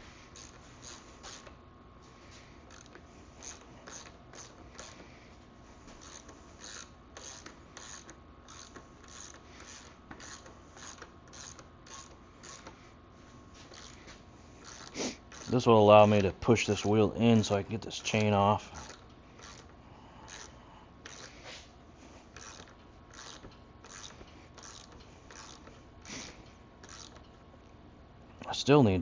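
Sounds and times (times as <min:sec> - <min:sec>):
socket ratchet clicking: 0:02.7 - 0:05.1, 0:06.0 - 0:12.8, 0:13.7 - 0:14.0, 0:14.6 - 0:15.6, 0:18.0 - 0:21.4, 0:22.3 - 0:27.4.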